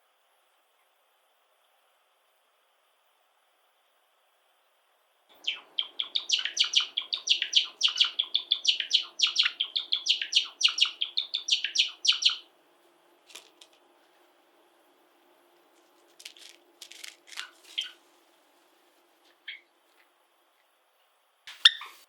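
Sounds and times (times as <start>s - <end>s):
sparrow singing chirps: 5.4s - 12.5s, 17.8s - 18.0s.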